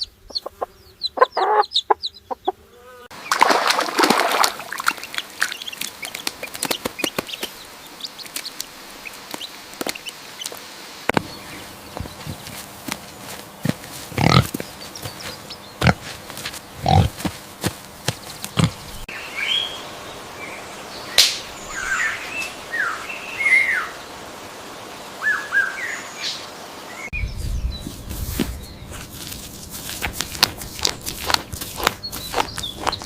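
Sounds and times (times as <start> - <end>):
small birds chirping: 0.0 - 3.4, 4.6 - 33.0
pig grunting: 14.0 - 14.6, 15.8 - 17.3, 18.5 - 18.9.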